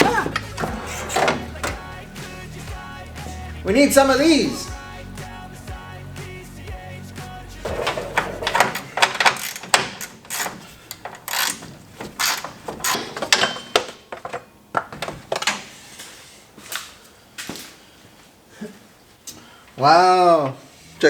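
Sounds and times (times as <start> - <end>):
hand tools clinking on metal: 7.7 - 13.9.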